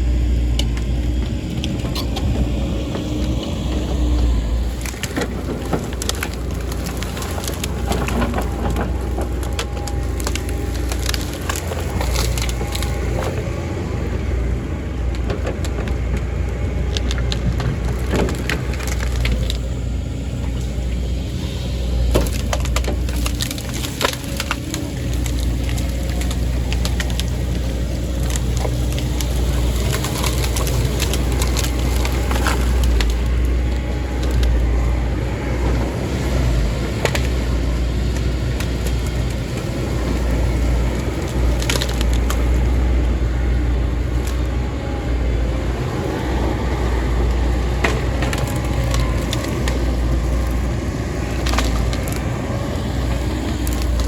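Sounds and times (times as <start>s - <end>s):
heavy diesel machine running: 0.0s - 54.0s
wood cracking and splintering: 0.0s - 54.0s.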